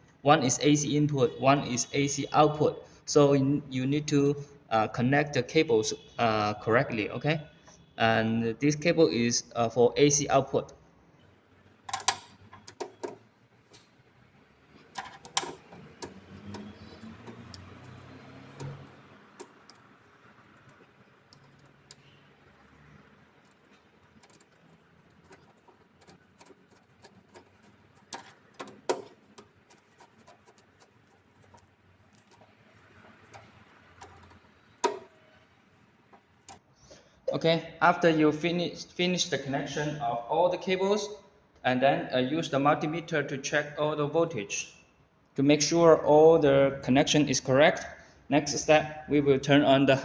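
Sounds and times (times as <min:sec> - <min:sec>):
hand tools clicking and tapping: 0:11.9 - 0:14.0, 0:14.6 - 0:35.5.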